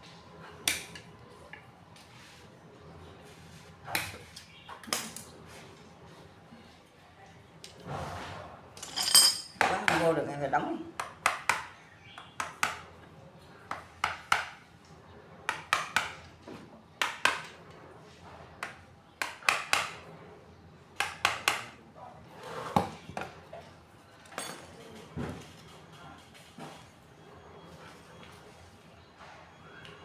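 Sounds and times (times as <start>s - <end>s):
sharp metal taps and clinks: 8.8s - 9.8s.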